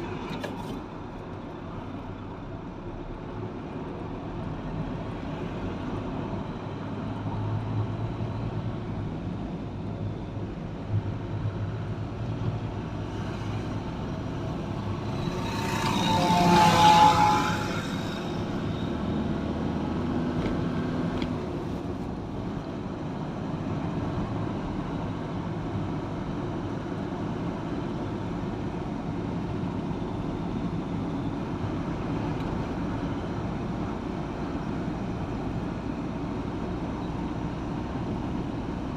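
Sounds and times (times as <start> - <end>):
vehicle engine and tyre noise: 0.0 - 38.9
vehicle passing: 14.6 - 21.0.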